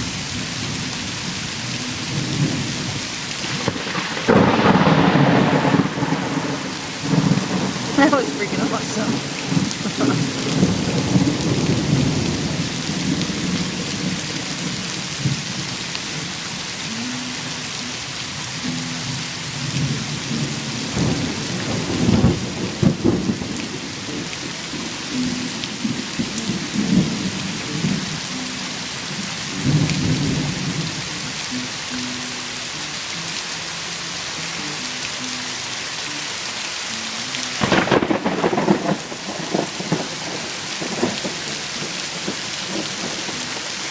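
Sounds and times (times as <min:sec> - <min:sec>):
heavy rain falling: 0:00.0 - 0:43.9
thunder rumbling: 0:02.0 - 0:15.8, 0:19.8 - 0:28.3, 0:29.1 - 0:31.2, 0:37.6 - 0:43.7.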